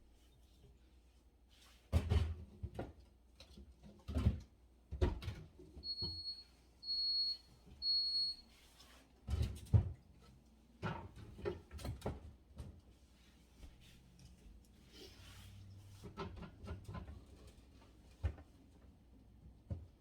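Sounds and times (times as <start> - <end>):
refrigerator alarm beeping: 5.8 - 8.4.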